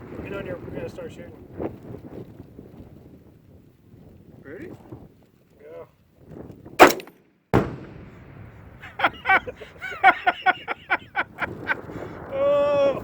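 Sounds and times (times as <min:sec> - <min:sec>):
rifle shot: 0:06.8 - 0:08.6
explosion boom with rumble: 0:07.6 - 0:09.8, 0:11.2 - 0:13.0.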